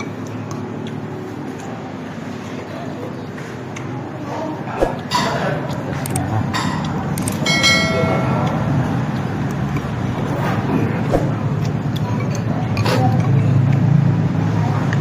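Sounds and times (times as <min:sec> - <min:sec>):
road traffic rumble: 0:00.0 - 0:15.0
metallic clink ringing: 0:07.4 - 0:08.6.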